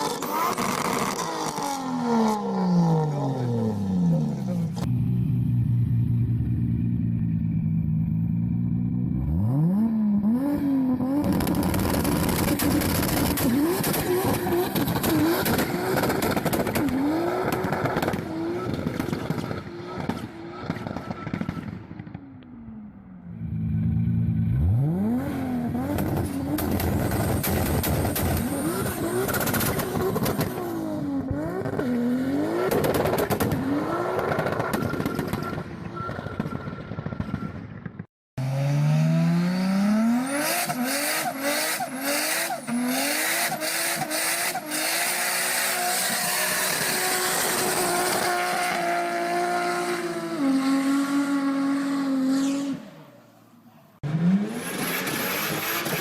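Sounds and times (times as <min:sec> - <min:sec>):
car engine revving hard: 0:38.4 - 0:52.7.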